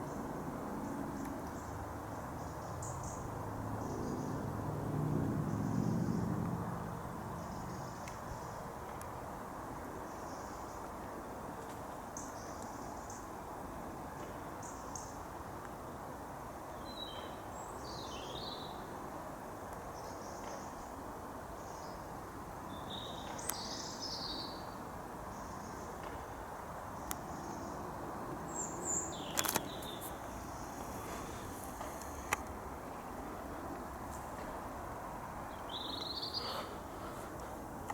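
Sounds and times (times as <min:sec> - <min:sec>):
low outdoor hum: 0:18.7 - 0:37.9
small birds chirping: 0:28.5 - 0:32.4, 0:35.4 - 0:37.5.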